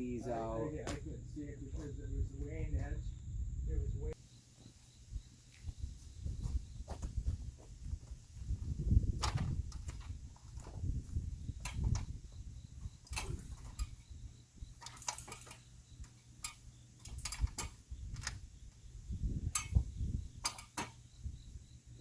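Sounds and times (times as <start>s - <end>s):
sharp clicks and light knocks: 14.8s - 18.4s, 19.5s - 21.0s.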